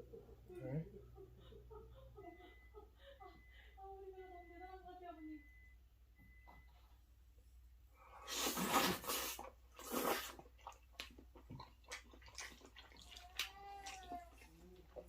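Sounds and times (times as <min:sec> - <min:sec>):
noodles being slurped: 0:08.2 - 0:15.0
wet chewing and mouth clicks: 0:08.6 - 0:15.0.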